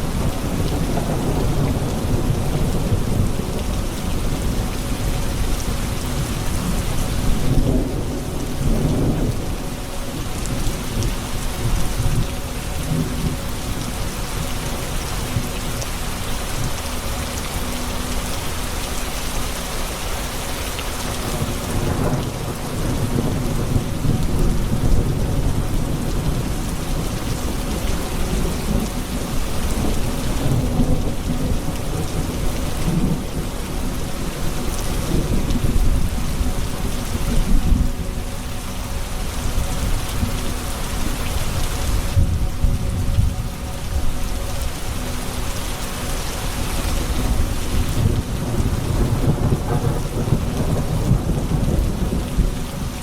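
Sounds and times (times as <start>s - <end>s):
low rolling thunder: 0.0s - 13.8s, 21.2s - 38.4s, 46.9s - 53.0s
heavy rain on surfaces: 0.0s - 53.0s.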